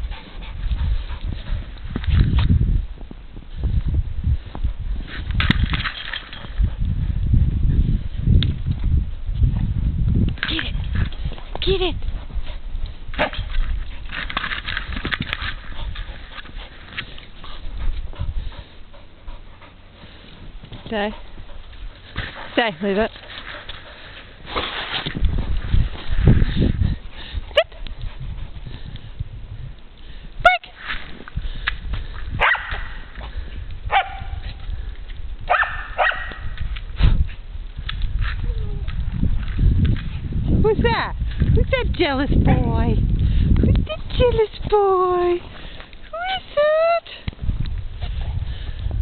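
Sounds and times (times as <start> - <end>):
wind rumble on microphone: 0.0 - 49.0
dog barking: 32.4 - 32.9, 33.9 - 34.4, 35.5 - 36.4.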